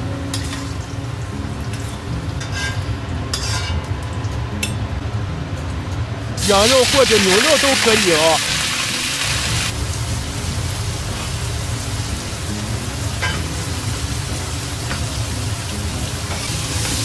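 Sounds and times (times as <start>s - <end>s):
meat sizzling in hot oil: 6.4s - 17.0s.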